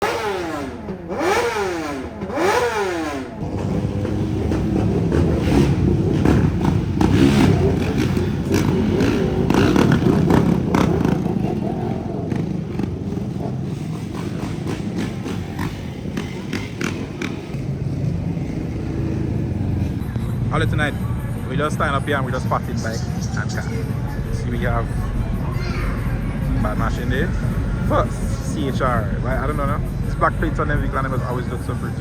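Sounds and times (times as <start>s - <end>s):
motorcycle engine revving: 0.0s - 32.0s
vehicle engine noise: 0.0s - 32.0s.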